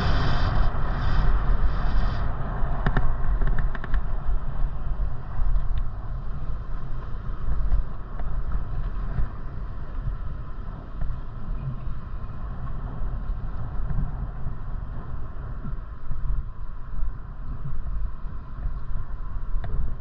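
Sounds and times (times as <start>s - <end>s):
hiss: 0.0s - 3.1s
bicycle tyres on road: 0.0s - 20.0s
wind rumbling on microphone: 0.0s - 20.0s.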